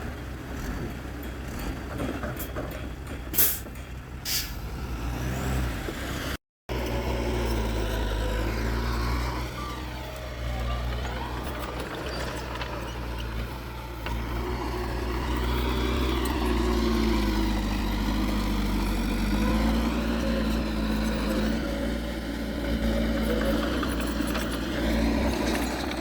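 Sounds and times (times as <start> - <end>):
heavy diesel engine running: 6.7 - 26.0.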